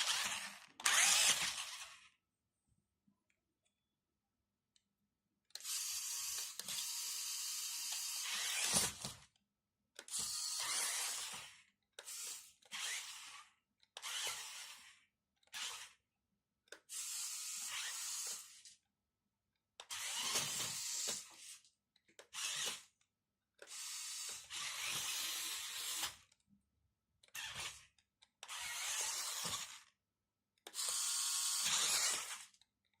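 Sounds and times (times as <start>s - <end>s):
toy truck electric motor whirring: 0.0s - 2.2s, 5.5s - 9.3s, 10.0s - 16.1s, 16.7s - 18.8s, 19.8s - 23.0s, 23.6s - 26.4s, 27.2s - 30.0s, 30.6s - 32.7s.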